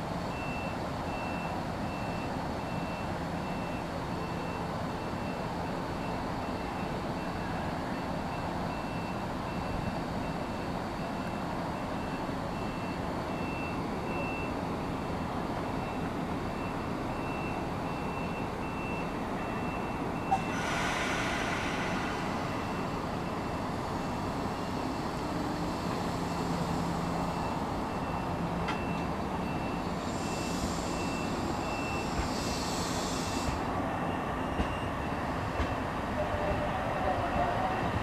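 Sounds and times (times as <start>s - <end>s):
train running equipment hum: 0.0s - 38.0s
air hiss: 20.3s - 23.2s, 30.0s - 33.7s.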